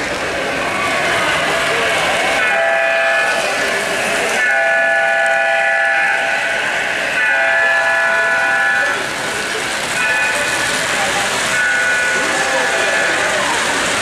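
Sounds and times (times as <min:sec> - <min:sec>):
electronic air-horn chord blasts: 0:07.2 - 0:09.0.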